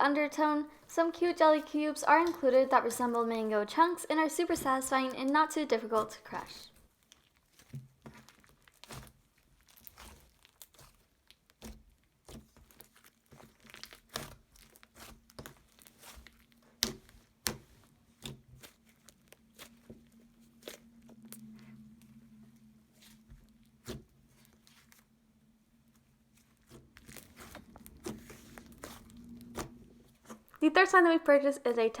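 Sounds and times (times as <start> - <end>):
slime squishing and crackling: 4.4 - 25.2, 25.8 - 30.6.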